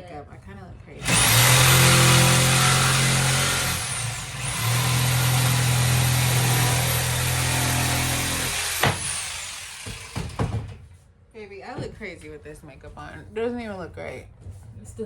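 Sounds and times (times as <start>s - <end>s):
electric power tool running: 1.0s - 10.4s.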